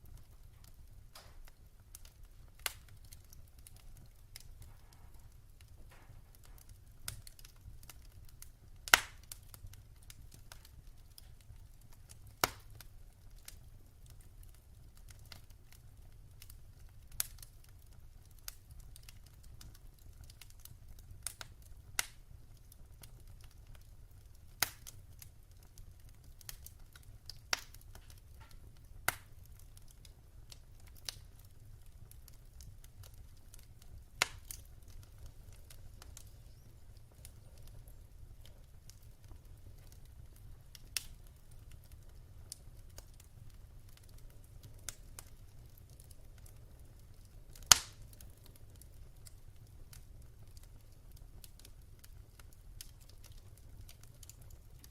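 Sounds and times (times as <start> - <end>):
wood fire crackling: 0.0 - 54.9
sharp pops of fire: 0.1 - 15.8, 18.4 - 22.2, 23.0 - 54.9.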